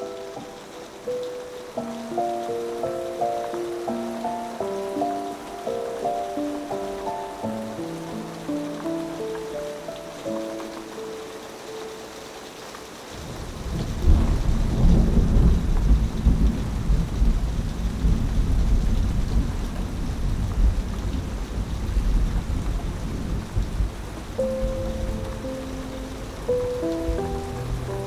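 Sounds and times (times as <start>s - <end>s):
rain on a metal roof: 0.0s - 28.0s
thunder rumbling: 13.1s - 28.0s.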